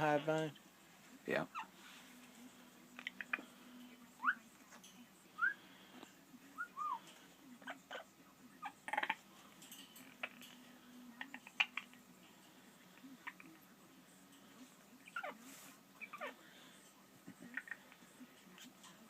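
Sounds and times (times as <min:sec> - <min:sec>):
parrot chirping: 0:01.5 - 0:01.8, 0:04.2 - 0:04.5, 0:06.6 - 0:07.0, 0:07.6 - 0:09.2, 0:11.2 - 0:12.0, 0:15.0 - 0:16.4, 0:17.4 - 0:18.0.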